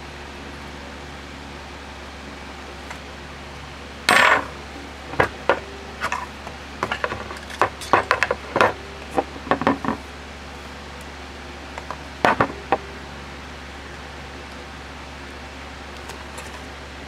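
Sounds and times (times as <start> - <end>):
metal parts clinking on hard surface: 4.1 - 10.0.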